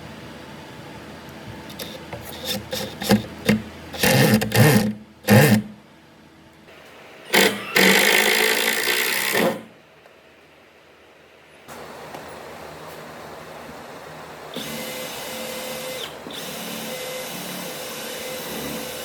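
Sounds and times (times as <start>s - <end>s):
hand tool scraping on wood: 1.7s - 5.7s.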